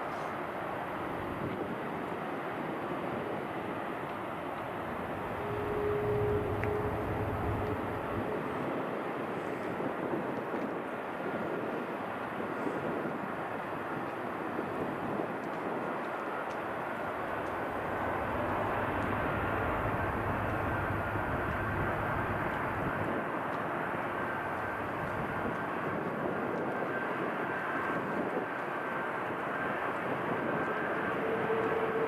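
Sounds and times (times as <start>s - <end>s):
jet engines rushing: 4.6s - 9.3s, 16.3s - 32.0s
high whine: 4.8s - 9.0s, 16.4s - 26.1s, 26.8s - 32.0s.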